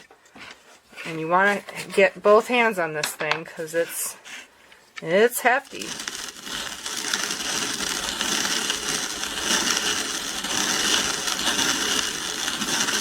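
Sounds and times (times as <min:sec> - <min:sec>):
hand-cranked grinder grinding grain: 0:05.0 - 0:13.0.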